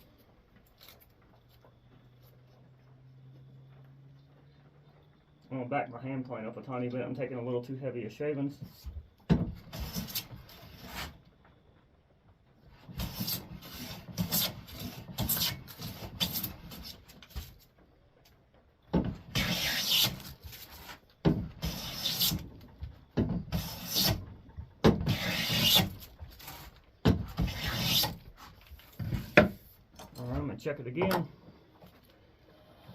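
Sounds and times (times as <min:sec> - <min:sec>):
hand plane shaving wood: 0:09.6 - 0:11.2, 0:12.7 - 0:17.4, 0:19.2 - 0:22.5, 0:23.5 - 0:24.3, 0:25.0 - 0:29.7.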